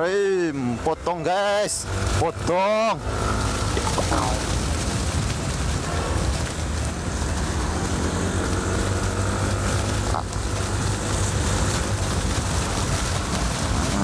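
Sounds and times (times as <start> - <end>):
wind rushing over microphone: 3.0 - 14.0.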